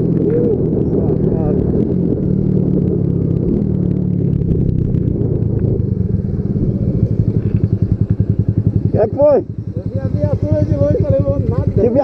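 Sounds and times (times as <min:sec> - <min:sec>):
wind rushing past helmet: 0:00.0 - 0:09.0
motorcycle engine running: 0:00.0 - 0:12.0.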